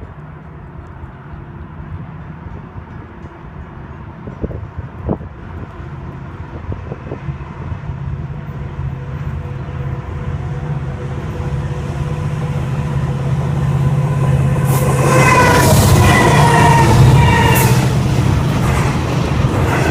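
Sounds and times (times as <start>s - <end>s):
train rumbling: 0.0s - 19.9s
train horn: 8.8s - 18.0s.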